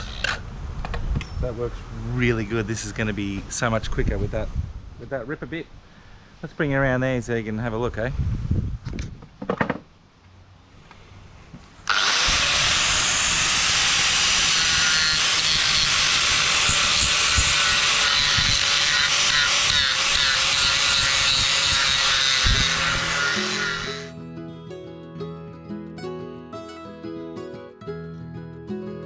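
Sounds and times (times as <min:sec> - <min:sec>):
power tool cutting wood: 0:00.0 - 0:00.4, 0:11.8 - 0:24.1.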